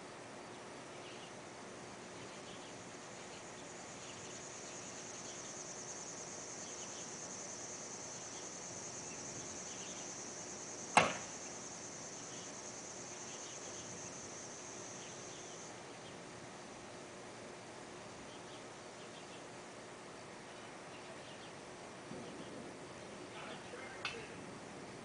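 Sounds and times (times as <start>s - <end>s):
faint insect chirps: 0.0s - 25.0s
insects trilling: 0.0s - 25.0s
sharp crack: 10.9s - 11.4s.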